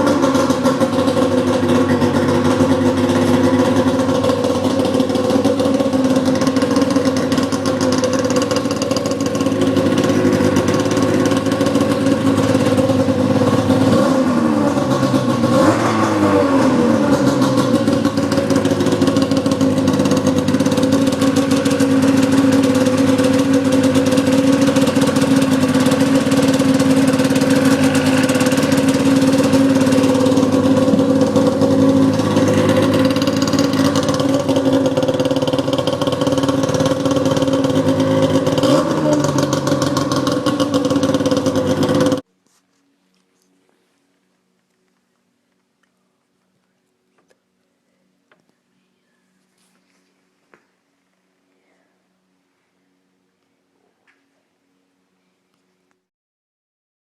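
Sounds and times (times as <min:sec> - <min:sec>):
snowmobile engine idling: 0:00.0 - 0:42.2.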